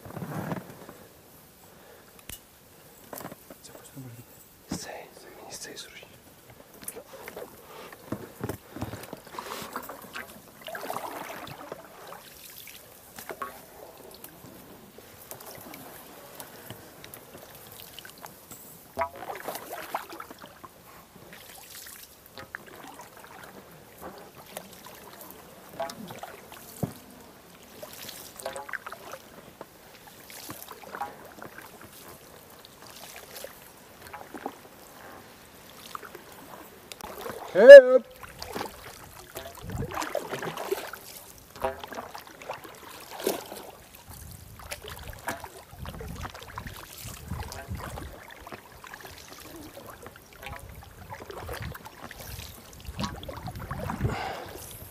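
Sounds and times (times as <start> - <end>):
water trickling and sloshing: 0.0 - 54.9.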